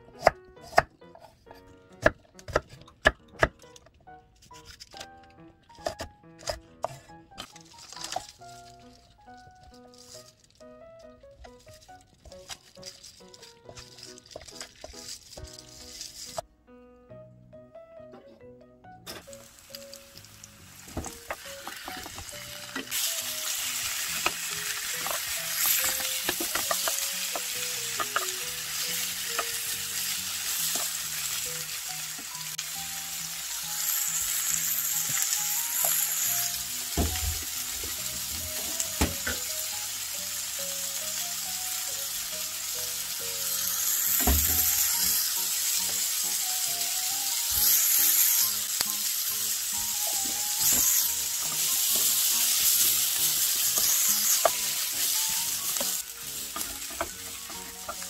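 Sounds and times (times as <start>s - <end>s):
food sizzling in a wok: 19.2s - 58.0s.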